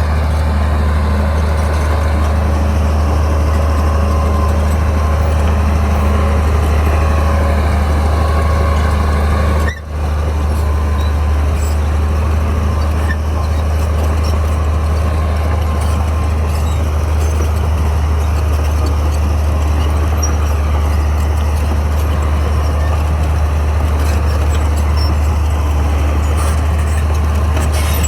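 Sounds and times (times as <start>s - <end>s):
bulldozer diesel engine droning: 0.0s - 28.0s.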